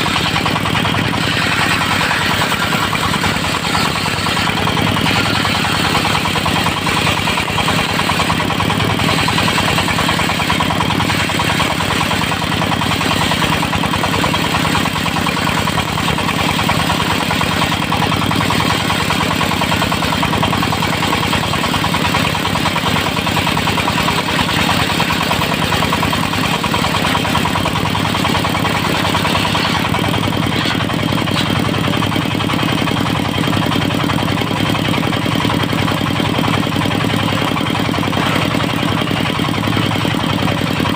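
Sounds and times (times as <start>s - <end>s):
sawmill engine and blade drone: 0.0s - 40.9s.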